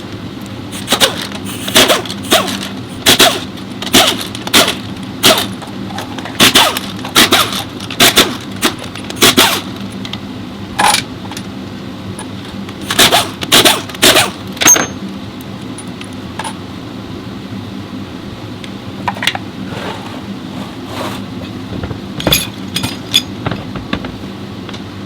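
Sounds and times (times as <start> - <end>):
steady low hum: 0.0 - 25.0
metal tools clinking and knocking: 14.6 - 15.0, 21.4 - 24.1.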